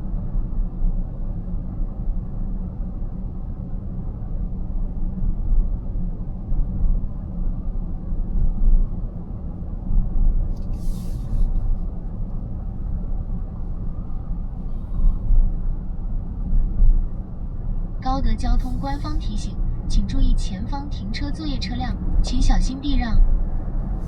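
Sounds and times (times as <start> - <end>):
road and tyre rumble: 0.0 - 24.0
brief hiss: 10.6 - 11.7.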